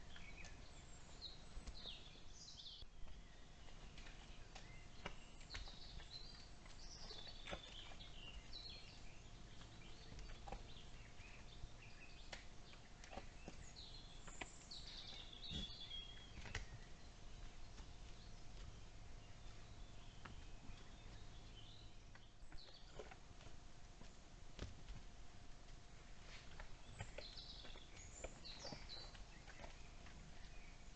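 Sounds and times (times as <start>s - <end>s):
birds chirping: 0.0s - 24.2s, 25.4s - 30.9s.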